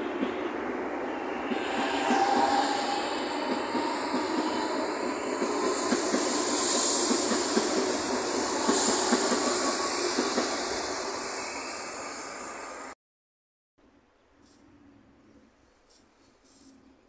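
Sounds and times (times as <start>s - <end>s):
electric train rushing past: 0.0s - 13.0s.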